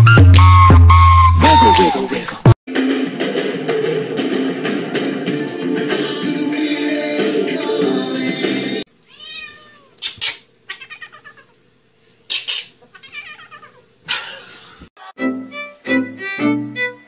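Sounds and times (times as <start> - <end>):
music: 0.0 - 2.0, 2.7 - 8.9, 15.0 - 17.0
cat meowing and yowling: 9.1 - 10.0, 10.7 - 11.5, 12.9 - 13.8.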